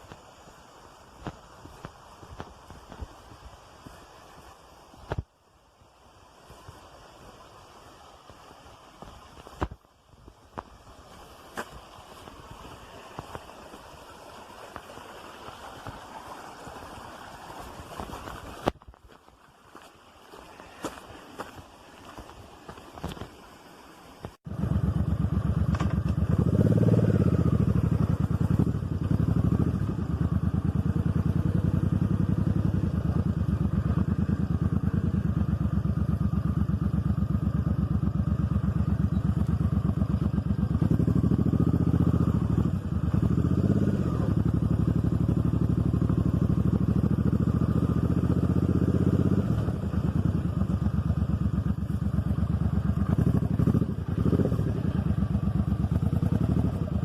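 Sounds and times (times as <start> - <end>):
motorcycle engine running: 24.5 - 57.0.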